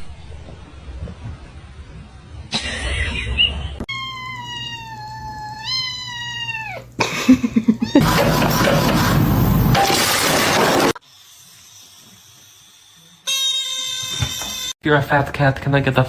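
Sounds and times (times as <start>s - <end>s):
cat meowing: 3.9s - 6.9s.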